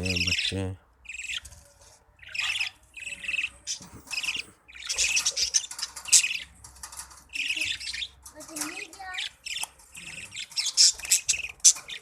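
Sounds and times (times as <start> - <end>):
budgerigars chirping: 0.0 - 1.6, 2.2 - 6.5, 7.3 - 8.2, 9.2 - 12.0.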